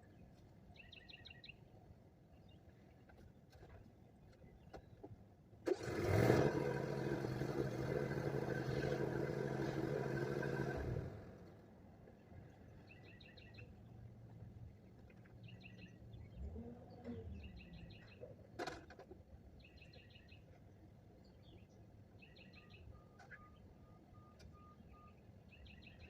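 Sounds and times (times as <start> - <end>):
faint bird song: 0.0 - 5.4, 11.4 - 18.6, 19.4 - 26.0
low steady rumble: 6.3 - 13.1.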